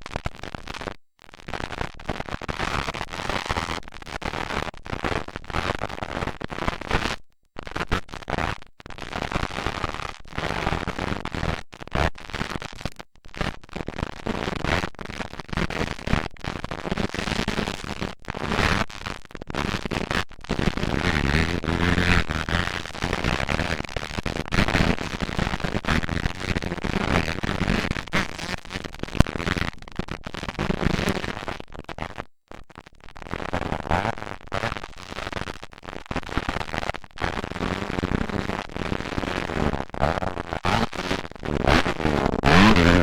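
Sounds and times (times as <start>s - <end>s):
dirt bike engines revving: 42.4s - 43.0s.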